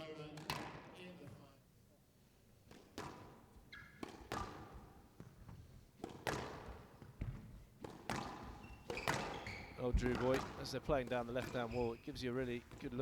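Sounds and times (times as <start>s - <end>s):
racquets striking ball: 0.4s - 1.5s, 2.7s - 13.0s
squash ball hitting walls: 2.7s - 11.7s
shoe squeak: 3.6s - 4.3s, 8.4s - 13.0s.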